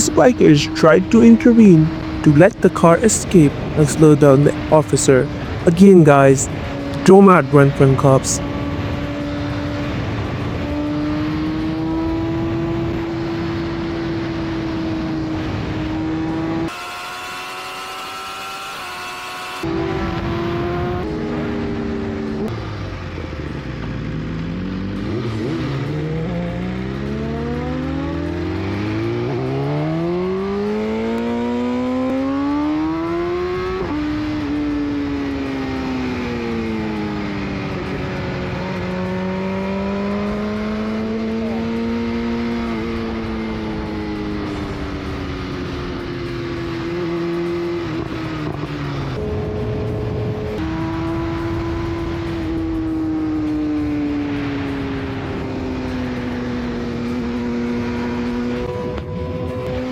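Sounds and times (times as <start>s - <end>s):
vehicle engine accelerating: 8.4s - 16.5s.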